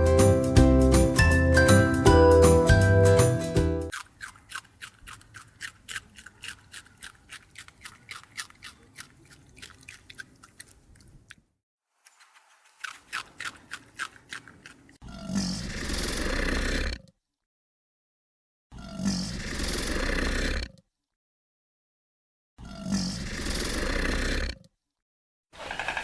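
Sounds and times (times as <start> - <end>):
animal chewing feed: 3.9 - 11.4, 12.0 - 15.0, 25.6 - 26.0
loud rough noise: 25.6 - 26.0.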